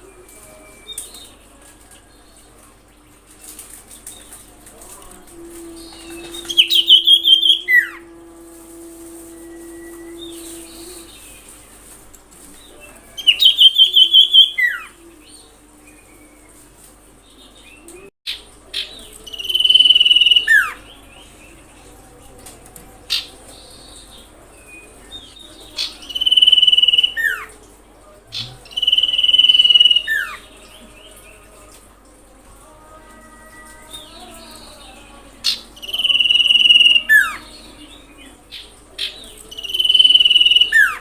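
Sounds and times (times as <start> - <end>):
bird trilling and whistling: 5.8 - 8.0, 13.2 - 14.9, 26.0 - 27.5, 28.6 - 30.4, 35.4 - 37.4, 39.5 - 41.0.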